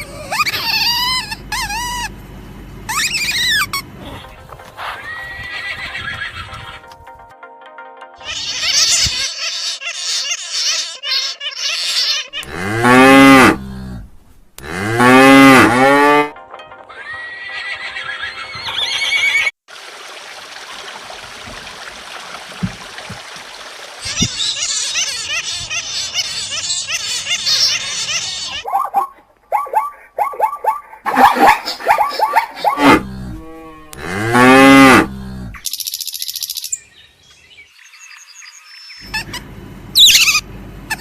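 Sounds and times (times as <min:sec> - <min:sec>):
high chirping: 0:08.2 - 0:12.5, 0:35.6 - 0:39.4, 0:40.0 - 0:41.0
cow mooing: 0:12.4 - 0:16.3, 0:32.8 - 0:35.6.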